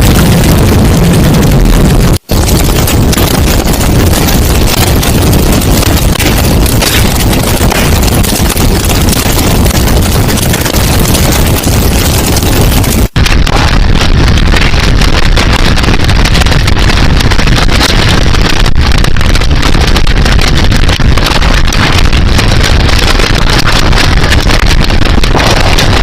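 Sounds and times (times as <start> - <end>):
storm wind rushing: 0.0 - 20.5.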